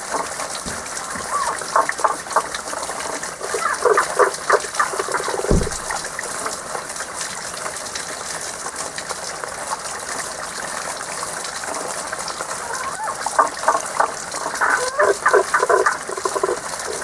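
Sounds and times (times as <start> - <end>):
spring water flowing: 0.0 - 17.0
frogs calling: 1.2 - 2.5, 3.1 - 6.0, 12.6 - 17.0
short low thump: 5.4 - 6.0.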